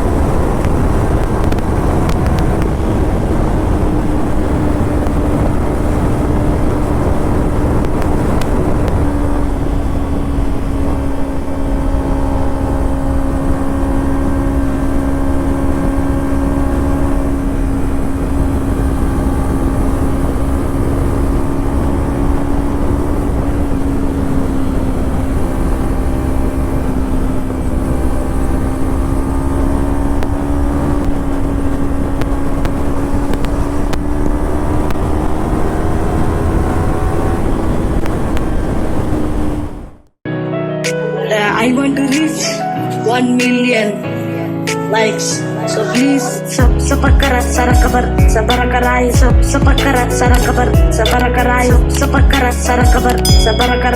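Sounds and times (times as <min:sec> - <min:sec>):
motorcycle engine cruising: 0:00.0 - 0:40.2.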